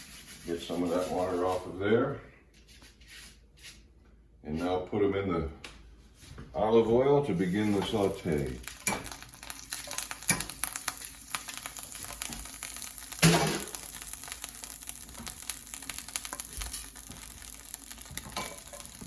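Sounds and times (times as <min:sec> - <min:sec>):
frying sizzle with crackles: 0:00.0 - 0:01.2, 0:07.2 - 0:19.0.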